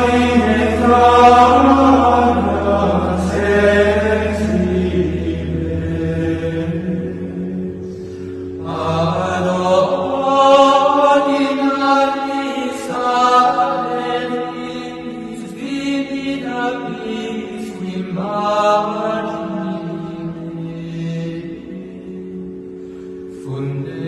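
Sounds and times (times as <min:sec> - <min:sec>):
chant sung in long phrases: 0:00.0 - 0:08.0, 0:08.6 - 0:22.0
steady low drone: 0:00.0 - 0:24.0.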